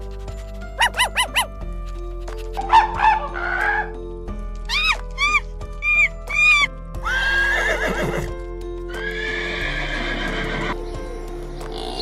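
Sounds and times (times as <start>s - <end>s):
background music: 0.0s - 12.0s
horse whinnying: 4.7s - 8.3s, 9.0s - 10.8s.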